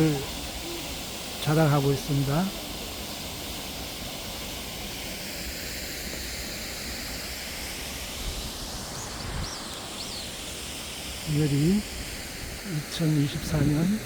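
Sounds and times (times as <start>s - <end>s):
fountain water splashing: 0.0s - 14.0s
high bird chirps: 8.9s - 10.6s.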